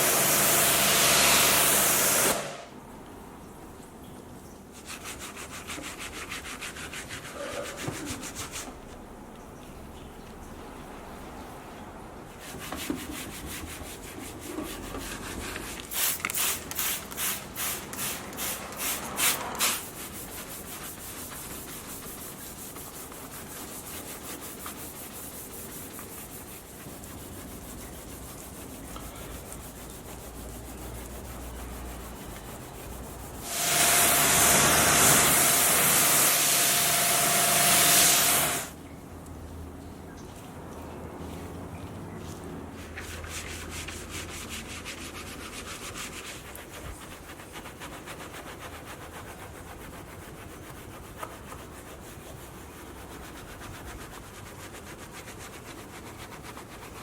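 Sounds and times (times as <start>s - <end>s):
scrubbing strokes: 4.7s - 9.1s, 12.3s - 36.5s, 40.3s - 57.0s
rubbing: 12.4s - 33.5s.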